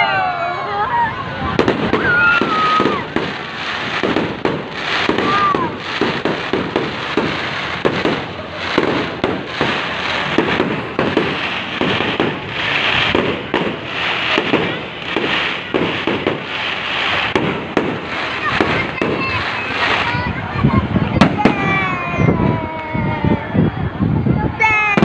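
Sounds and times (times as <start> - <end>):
continuous fireworks crackle: 0.1 - 25.0
firecracker bangs: 1.5 - 22.0.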